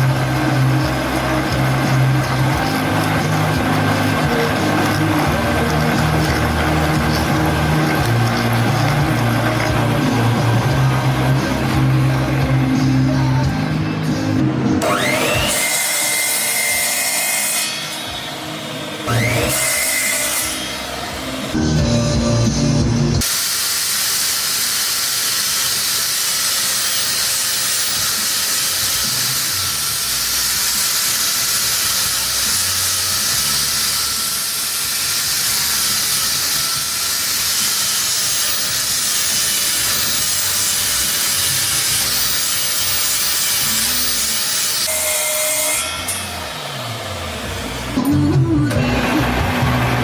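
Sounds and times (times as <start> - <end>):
loud steady hissing: 0.0 - 14.4, 20.6 - 45.0.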